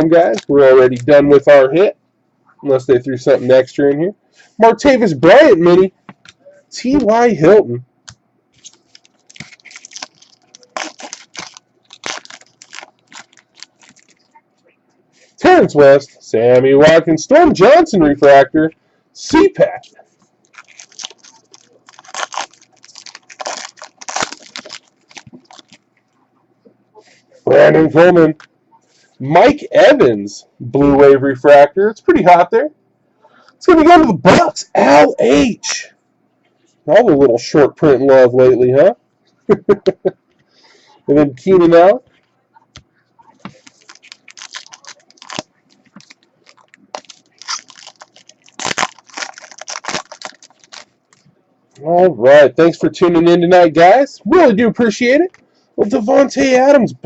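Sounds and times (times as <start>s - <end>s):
cards being handled: 8.6s - 14.3s
foil wrapper crinkling and tearing: 8.6s - 14.3s, 20.4s - 25.8s, 43.5s - 51.2s.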